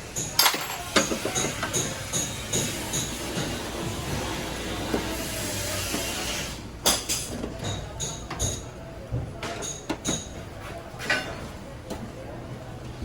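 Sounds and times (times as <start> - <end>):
metal tools clinking and knocking: 0.2 - 2.2.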